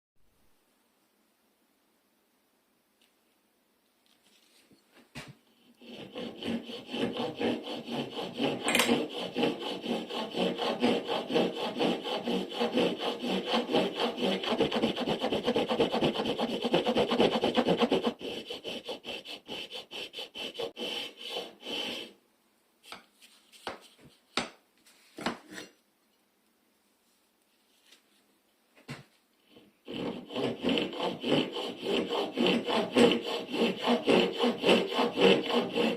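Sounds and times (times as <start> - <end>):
float rasping wood: 5.6 - 22.2, 29.4 - 35.9.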